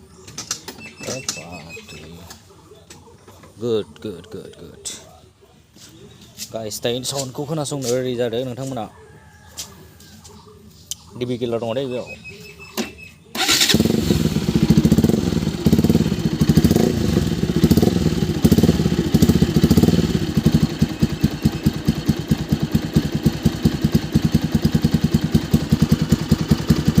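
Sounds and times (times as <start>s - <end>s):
motorcycle engine idling: 13.4s - 27.0s.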